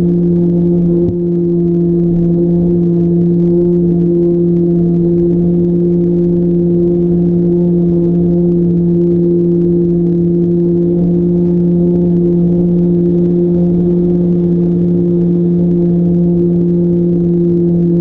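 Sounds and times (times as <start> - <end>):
model plane motor humming: 0.0 - 18.0.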